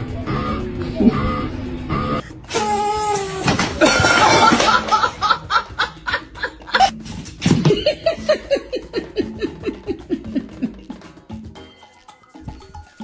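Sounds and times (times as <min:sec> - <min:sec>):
person laughing: 0:03.6 - 0:11.1.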